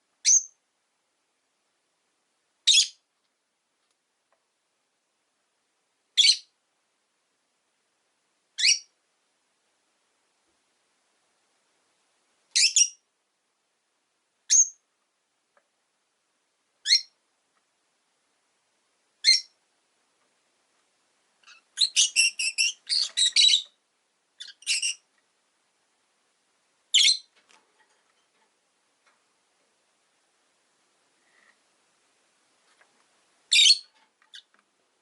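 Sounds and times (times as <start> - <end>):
lovebirds chirping: 0.2 - 0.6, 2.6 - 3.1, 6.2 - 6.6, 8.6 - 9.0, 12.5 - 13.0, 14.5 - 14.9, 16.8 - 17.2, 19.2 - 19.6, 21.4 - 25.1, 26.9 - 27.4, 33.5 - 34.6.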